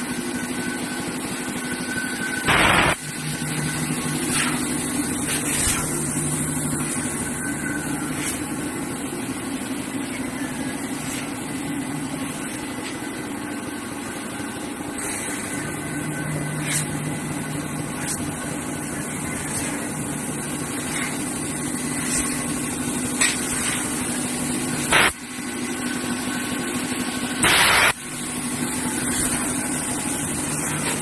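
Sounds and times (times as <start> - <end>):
laser cutting machine hum: 0.0 - 31.0
short bursts of noise: 2.5 - 3.0.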